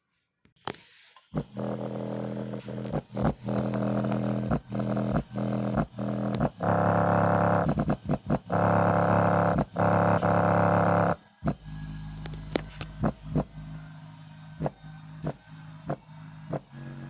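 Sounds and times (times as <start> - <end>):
distorted bass from subwoofer: 1.4 - 13.9.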